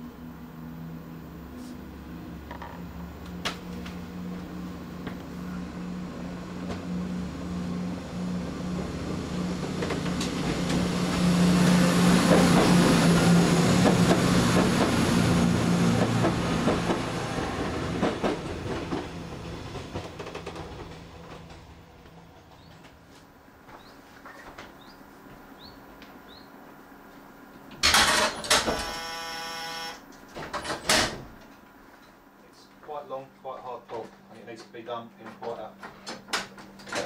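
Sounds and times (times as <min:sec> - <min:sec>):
train engine hum: 0:00.0 - 0:27.8.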